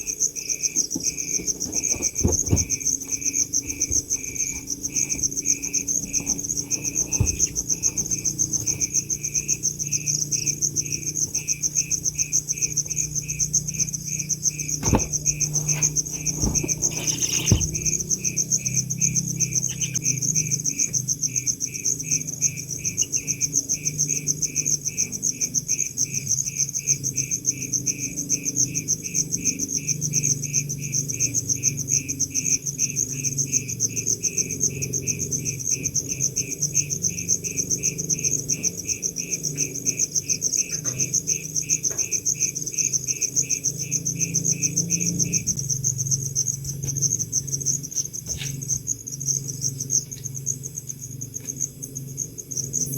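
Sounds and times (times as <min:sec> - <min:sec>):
lower insect chirp: 0:00.0 - 0:52.9.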